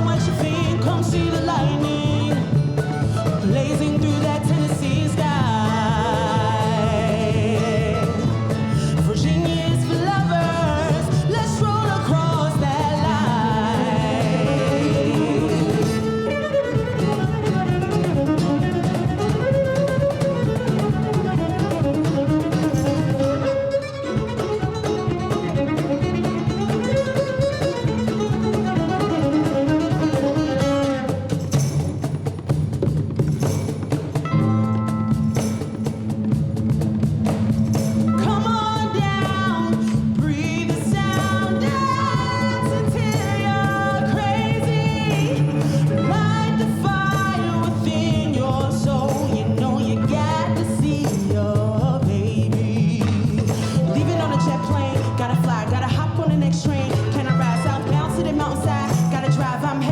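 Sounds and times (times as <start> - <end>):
bowed cello melody: 0.0 - 31.8, 38.1 - 52.8
mandolin: 0.0 - 59.9
plucked guitar: 0.0 - 59.9
string band playing: 0.0 - 59.9.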